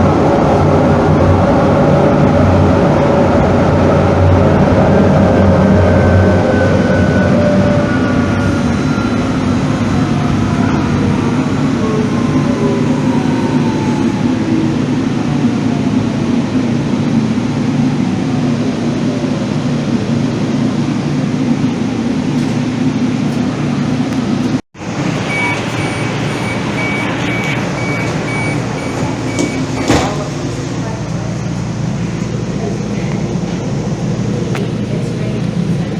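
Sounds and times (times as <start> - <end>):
light-rail train motor whine: 0.0 - 20.5, 24.8 - 35.9
electronic beeping: 25.0 - 30.5.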